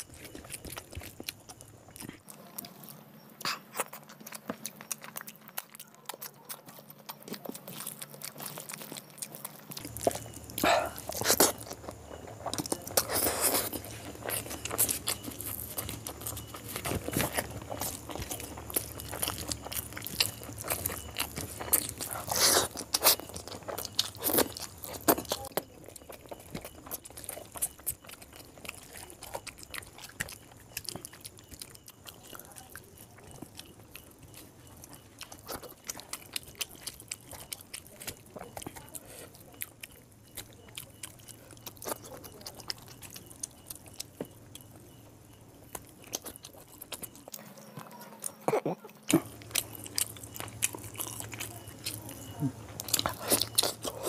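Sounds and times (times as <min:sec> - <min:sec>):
chewing with wet clicks: 0:00.0 - 0:54.0
sharp bites and crunches: 0:07.1 - 0:25.7.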